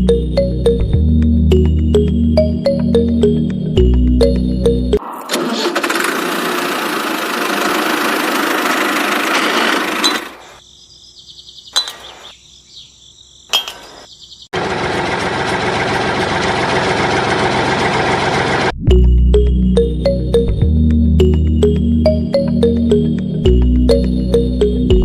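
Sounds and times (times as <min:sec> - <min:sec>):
small engine running: 0:05.3 - 0:10.6, 0:14.6 - 0:18.7.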